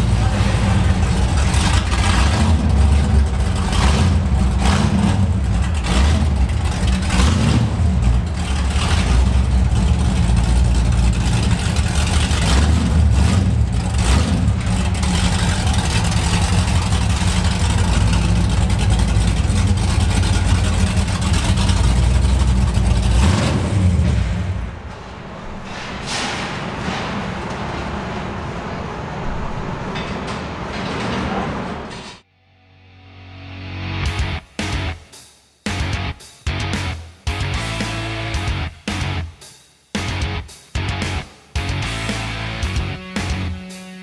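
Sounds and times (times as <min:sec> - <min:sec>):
car engine idling loudly: 0:00.0 - 0:25.0
engine throttle blips: 0:00.0 - 0:32.2.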